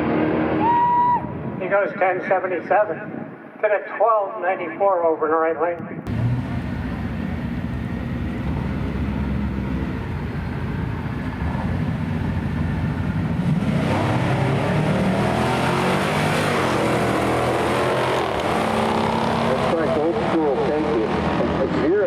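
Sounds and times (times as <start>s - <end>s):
race car engine rumbling: 6.0s - 22.0s.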